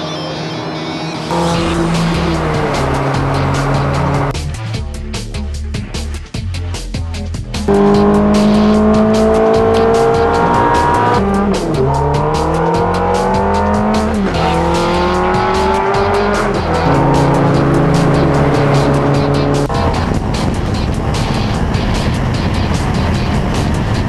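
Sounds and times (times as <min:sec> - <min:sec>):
sports car engine accelerating: 0:01.1 - 0:04.4, 0:07.6 - 0:20.4.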